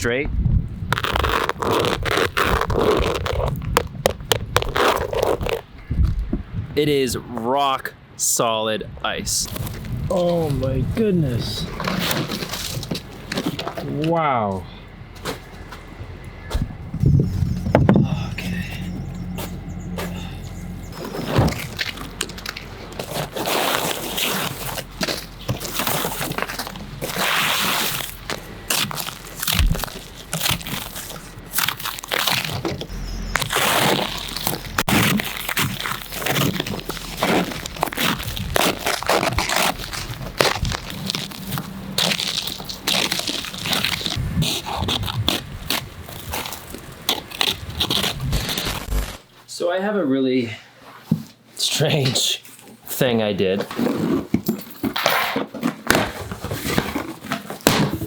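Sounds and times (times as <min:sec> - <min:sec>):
ice scraping off car: 0:00.9 - 0:05.7, 0:11.2 - 0:13.6, 0:19.8 - 0:49.2.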